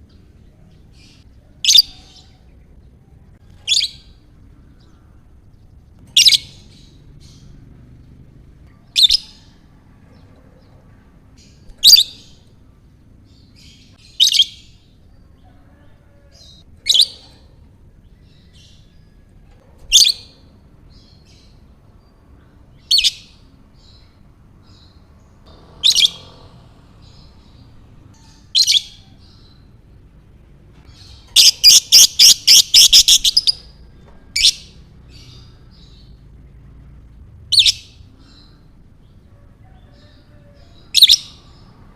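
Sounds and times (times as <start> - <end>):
lovebird chirping: 0.8 - 2.4, 3.4 - 5.4, 6.1 - 12.5, 13.3 - 15.5, 19.9 - 30.0, 30.8 - 36.2, 37.5 - 38.8, 40.5 - 41.8.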